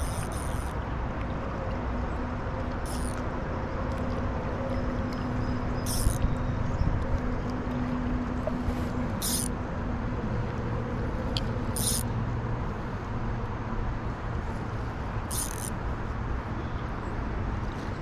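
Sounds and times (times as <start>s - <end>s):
low motor rumble: 0.0s - 18.0s.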